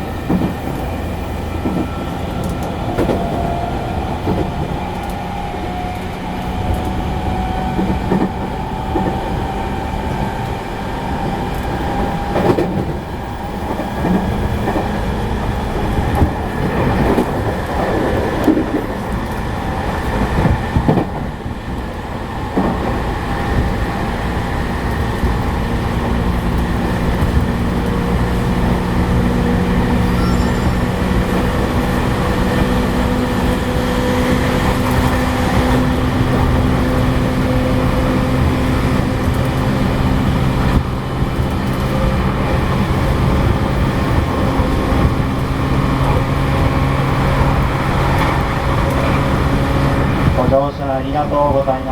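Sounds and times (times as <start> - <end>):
clacks at rail joints: 0.0 - 51.9
train wheels rumbling on rail: 0.0 - 51.9
train motor tone: 29.5 - 33.4.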